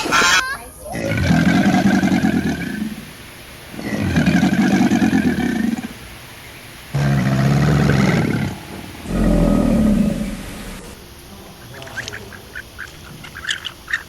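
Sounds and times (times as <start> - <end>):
large animal low calls: 0.0 - 3.1, 3.7 - 6.0, 6.9 - 11.0.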